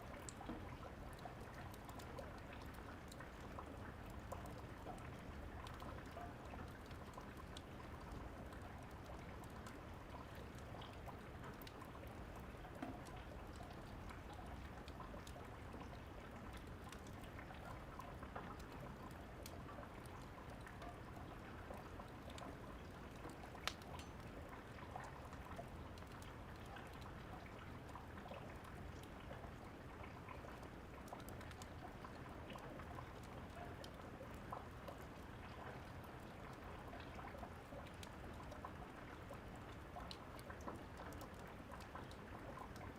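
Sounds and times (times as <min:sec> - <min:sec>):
steady rain: 0:00.0 - 0:42.9
wood fire crackling and popping: 0:23.1 - 0:24.3.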